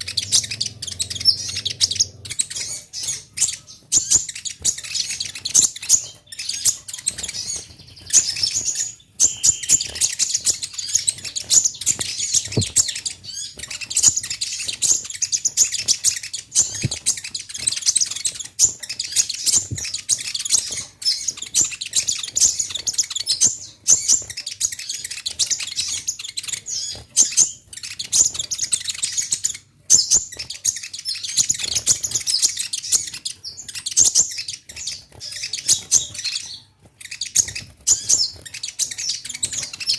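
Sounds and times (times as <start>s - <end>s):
sunbird chirping and trilling: 0.0s - 39.9s.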